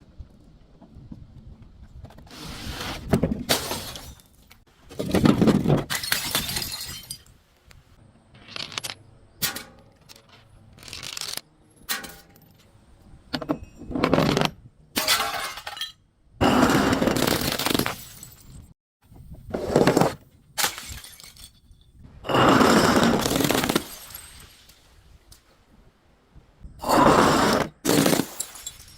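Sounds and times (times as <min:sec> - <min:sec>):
glass bottles breaking and crunching: 0:03.5 - 0:07.4, 0:13.5 - 0:18.7, 0:20.6 - 0:24.9, 0:27.6 - 0:28.9.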